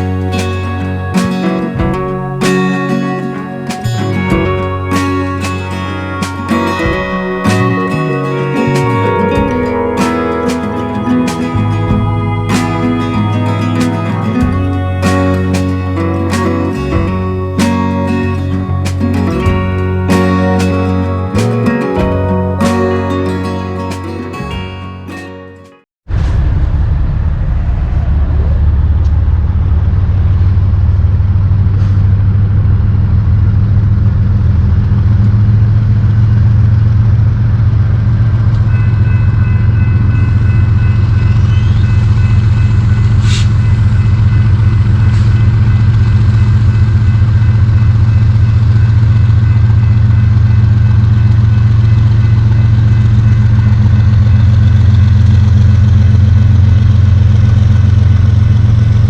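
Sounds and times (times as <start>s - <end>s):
diesel locomotive rumble: 0.0s - 24.9s, 26.1s - 59.0s
high whining tones: 0.0s - 24.9s, 38.5s - 59.0s.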